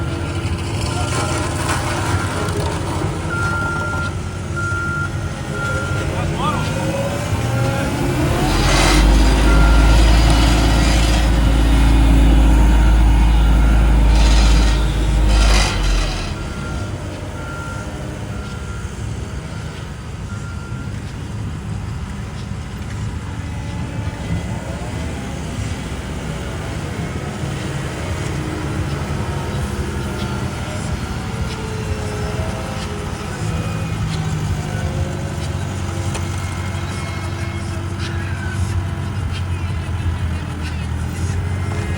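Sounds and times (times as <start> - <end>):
diesel machinery rumbling: 0.0 - 41.9
faint backup alarm beeping: 3.3 - 21.7.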